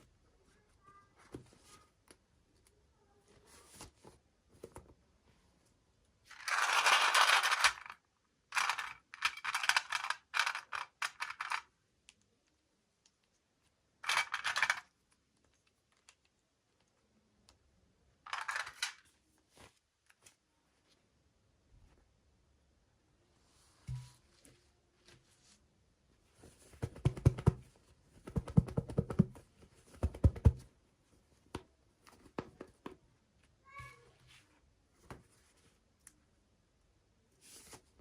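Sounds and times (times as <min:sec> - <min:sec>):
toy packaging crinkling: 0:06.3 - 0:08.0, 0:08.6 - 0:11.7, 0:14.0 - 0:14.9, 0:18.3 - 0:19.1.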